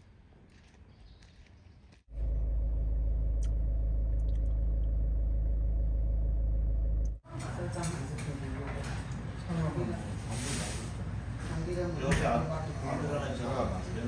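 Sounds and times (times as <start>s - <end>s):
vehicle rumble: 2.1s - 7.7s.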